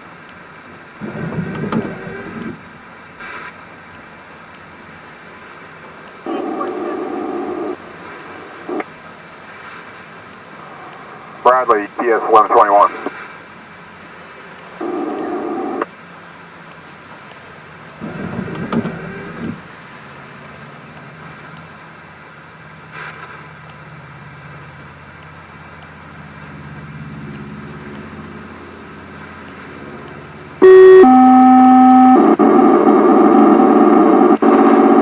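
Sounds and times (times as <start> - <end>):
faint low hum: 0.2 - 35.0
radio squelch bursts: 3.2 - 3.6, 6.2 - 8.9, 10.6 - 13.4
loud steady alert tone: 30.6 - 33.7.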